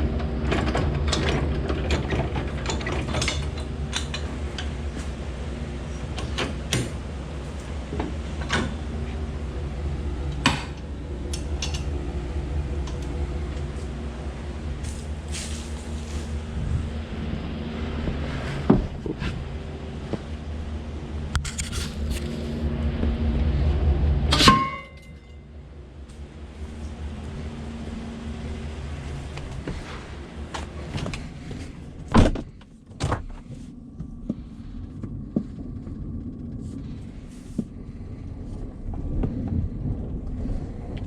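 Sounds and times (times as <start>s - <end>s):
truck engine humming: 0.0s - 32.2s.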